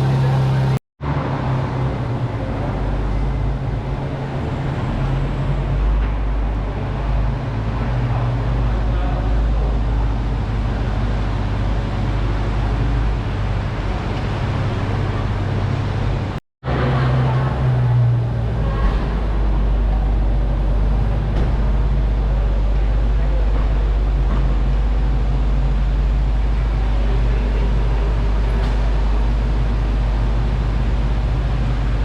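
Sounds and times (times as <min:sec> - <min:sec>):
car engine idling: 0:00.0 - 0:00.8
street traffic: 0:00.0 - 0:32.0.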